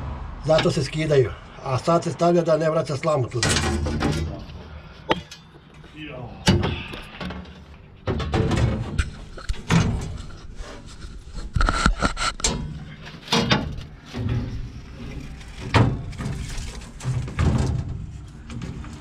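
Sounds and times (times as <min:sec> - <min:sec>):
metal parts knocking and clattering: 0:03.4 - 0:04.4, 0:06.5 - 0:10.4
rumbling: 0:12.3 - 0:19.0.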